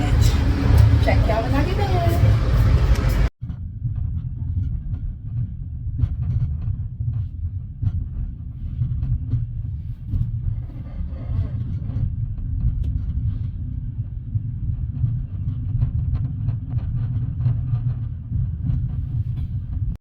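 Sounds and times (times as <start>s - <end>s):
train rumbling inside carriage: 0.0s - 3.3s, 17.4s - 20.0s.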